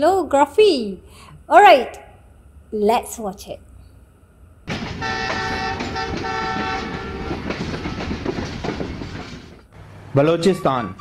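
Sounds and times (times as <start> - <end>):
moving train rumble and wheel clicks: 4.7 - 11.0
train horn chord: 4.9 - 7.6.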